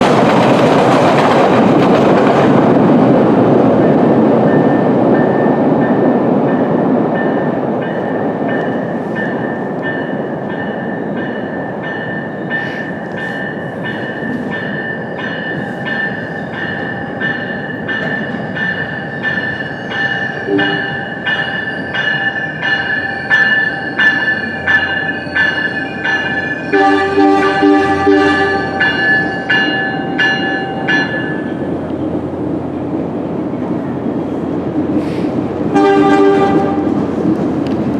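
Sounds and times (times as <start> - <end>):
train rumbling on tracks: 0.0 - 37.9.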